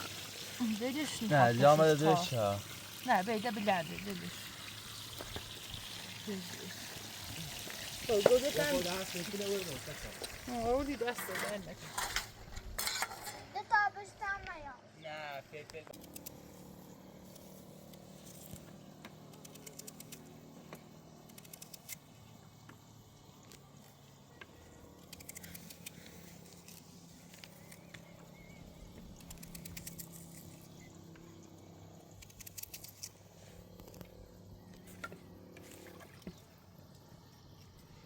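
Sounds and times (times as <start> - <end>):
small clicks and crackles: 17.3 - 28.2, 28.9 - 31.3, 32.1 - 37.9.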